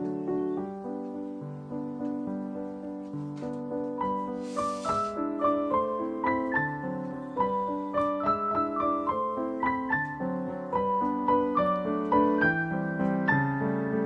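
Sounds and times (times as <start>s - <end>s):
piano music: 0.0s - 14.0s
brief hiss: 4.3s - 5.1s.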